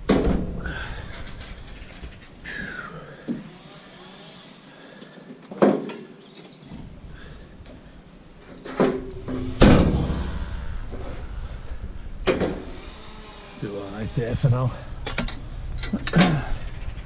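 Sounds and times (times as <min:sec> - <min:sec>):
scrap metal knocks and clanks: 0:08.4 - 0:11.2
low rumble: 0:08.9 - 0:13.6.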